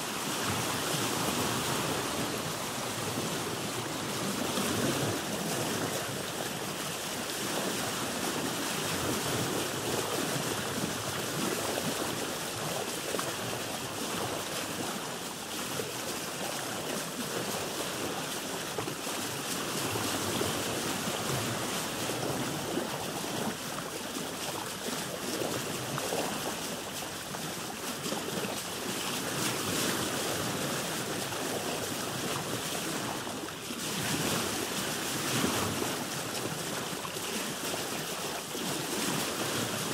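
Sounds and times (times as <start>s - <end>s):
ocean waves washing: 0.0s - 16.4s.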